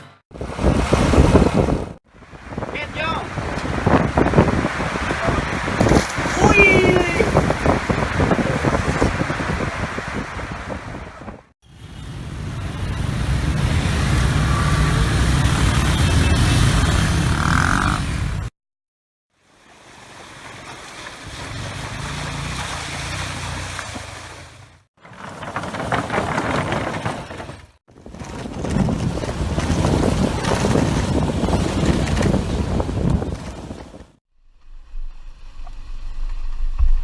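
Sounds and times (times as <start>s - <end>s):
wind noise on microphone: 0.3s - 11.5s, 27.8s - 37.0s
motorbike engines running: 11.7s - 18.5s, 20.5s - 34.0s.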